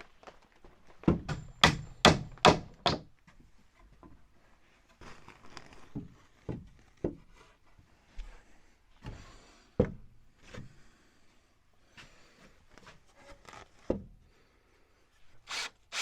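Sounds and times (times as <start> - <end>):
rustling and handling noise: 0.0 - 1.1, 3.4 - 8.9
knocks on wooden lumber: 1.1 - 3.1.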